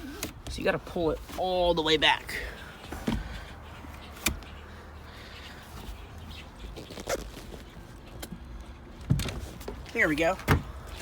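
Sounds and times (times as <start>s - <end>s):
soft knocks and rustles: 2.8s - 4.6s.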